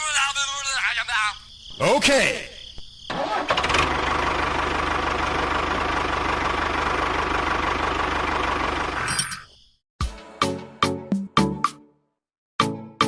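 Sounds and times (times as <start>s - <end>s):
small engine chugging: 3.1s - 9.0s.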